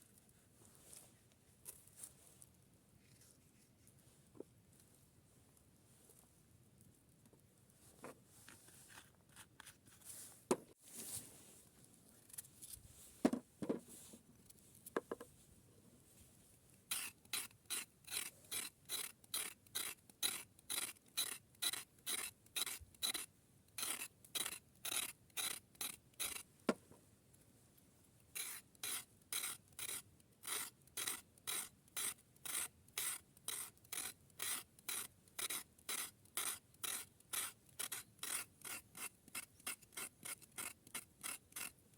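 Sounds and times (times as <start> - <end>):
hand rasping strokes: 16.9 - 26.5, 28.4 - 41.8.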